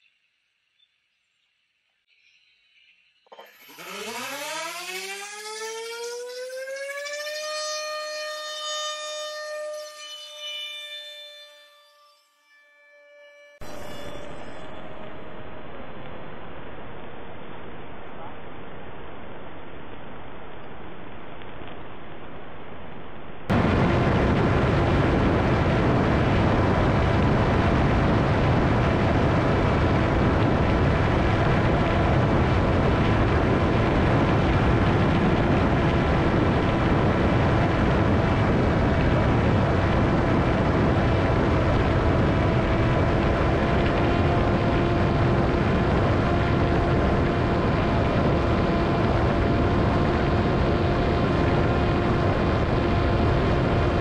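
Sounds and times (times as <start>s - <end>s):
electric motor and propeller whine: 3.3s - 21.2s, 23.5s - 54.0s
rush of air: 23.5s - 49.8s.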